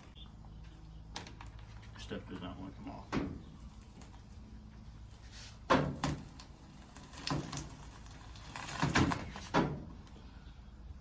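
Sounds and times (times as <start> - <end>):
plastic panel cracking and creaking: 6.0 - 9.5.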